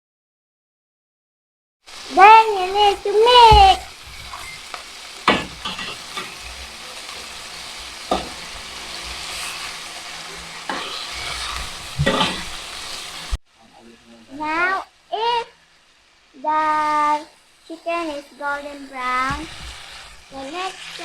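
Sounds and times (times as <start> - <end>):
chicken sizzling in hot oil: 1.9 - 21.0
spatula knocking against pan: 5.2 - 6.6, 8.1 - 8.4.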